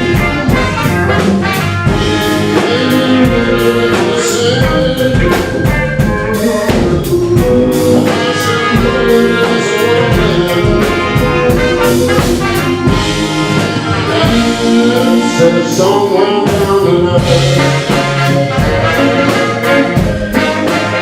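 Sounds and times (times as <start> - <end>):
blues band playing: 0.0 - 21.0
saxophone and trumpet: 0.0 - 21.0.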